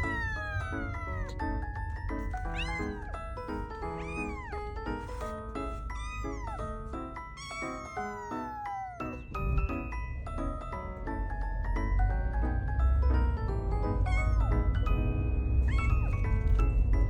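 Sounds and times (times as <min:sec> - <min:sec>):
kitten meowing: 0:00.0 - 0:09.2, 0:14.1 - 0:14.7, 0:15.6 - 0:16.7.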